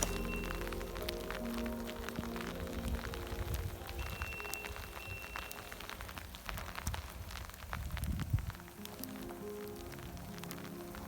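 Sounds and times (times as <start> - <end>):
faint high tone: 0.0 - 5.8
wet snow pattering: 0.0 - 11.0
wind rumble on microphone: 0.0 - 11.0.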